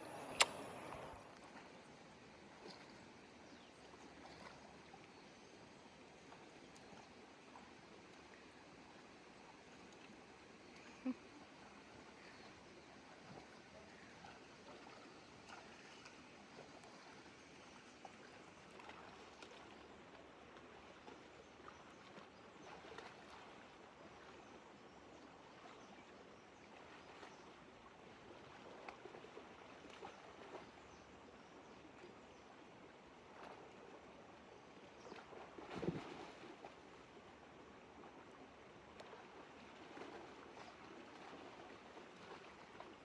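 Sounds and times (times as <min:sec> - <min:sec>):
faint outdoor hiss: 0:00.0 - 0:02.4
soft ticks and rustles: 0:38.9 - 0:43.0.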